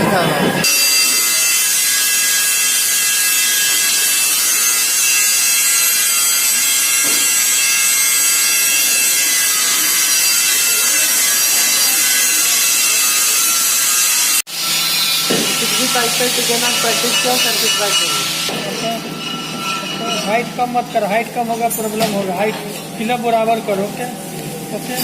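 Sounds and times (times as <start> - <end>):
welding arc hissing: 0.8 - 19.0.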